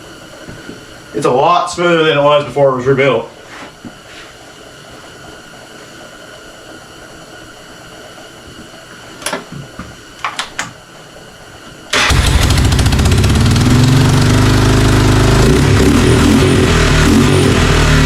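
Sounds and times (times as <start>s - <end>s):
atv engine running: 12.0s - 18.0s.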